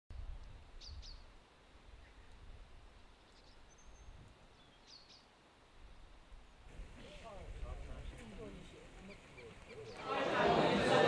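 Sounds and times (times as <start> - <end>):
small bird chirping: 3.1 - 5.3, 9.0 - 10.0.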